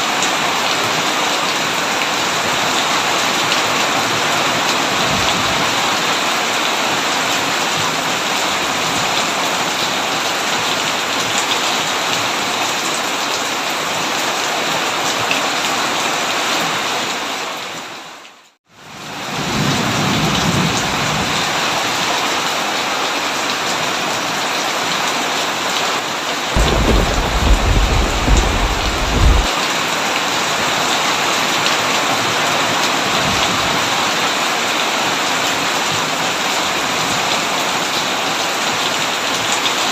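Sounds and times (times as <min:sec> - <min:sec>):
heavy rain on a tin roof: 0:00.0 - 0:39.9
low rumble of thunder: 0:26.6 - 0:29.5.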